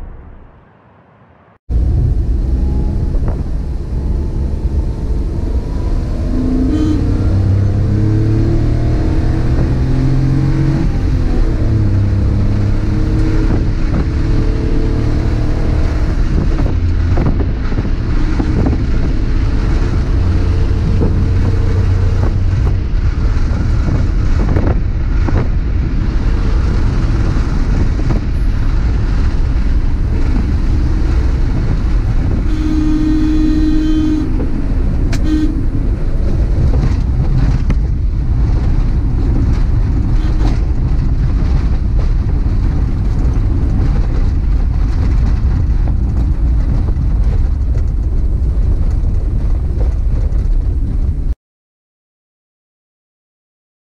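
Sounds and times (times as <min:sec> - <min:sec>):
road and tyre rumble: 0:00.0 - 0:51.4
car engine running: 0:16.2 - 0:51.2.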